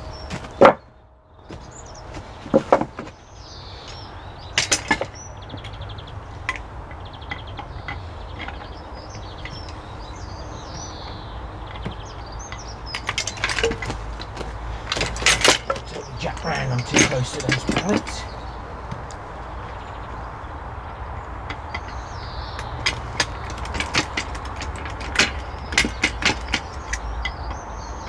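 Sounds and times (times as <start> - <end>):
songbirds chirping: 0.0 - 28.0
wooden blocks knocking: 0.3 - 0.9, 1.5 - 3.2, 10.6 - 19.2.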